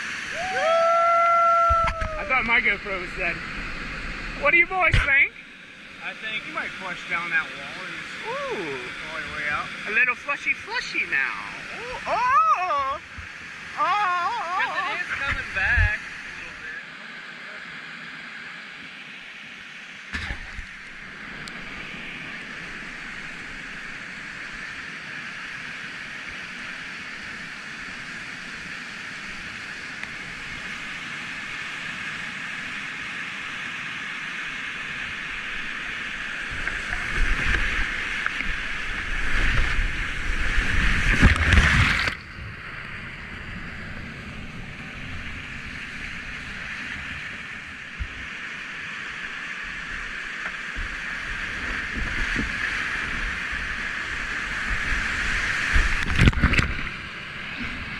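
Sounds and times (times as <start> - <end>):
heavy water splashing: 34.2 - 42.8.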